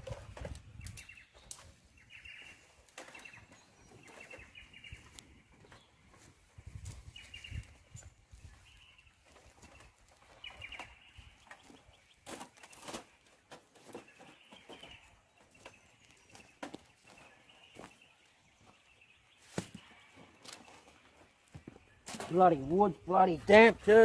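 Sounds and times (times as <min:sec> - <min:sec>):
faint bird chirps: 0:07.0 - 0:13.0.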